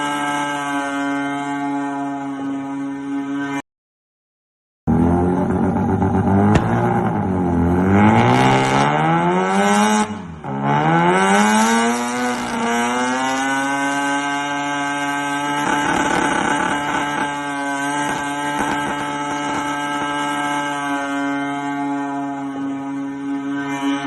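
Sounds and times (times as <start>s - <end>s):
car engine revving: 4.9s - 24.0s.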